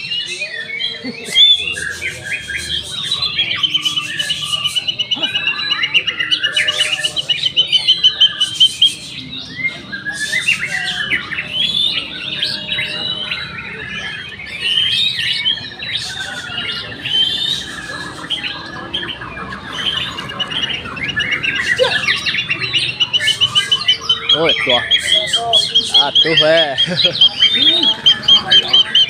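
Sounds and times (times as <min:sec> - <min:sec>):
fast even bird trill: 0:00.0 - 0:29.0
songbirds singing: 0:00.0 - 0:29.0.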